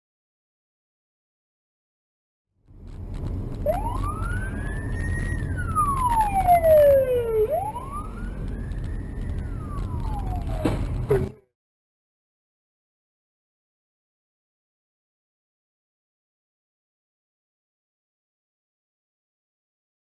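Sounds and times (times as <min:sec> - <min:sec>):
road and engine rumble: 0:02.6 - 0:11.5
emergency siren wailing: 0:03.6 - 0:11.3.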